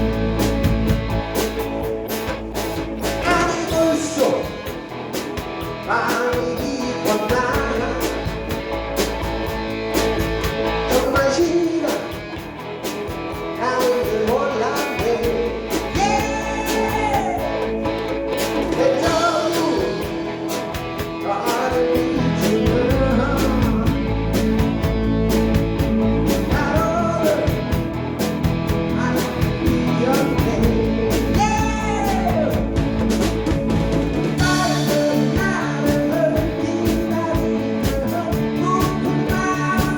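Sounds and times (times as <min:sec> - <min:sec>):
bass guitar: 0:00.0 - 0:39.9
drums: 0:00.0 - 0:39.9
electric guitars: 0:00.0 - 0:39.9
person singing: 0:03.0 - 0:04.9, 0:05.8 - 0:08.6, 0:10.9 - 0:12.5, 0:13.4 - 0:24.7, 0:26.2 - 0:28.0, 0:28.7 - 0:33.3, 0:34.3 - 0:39.9.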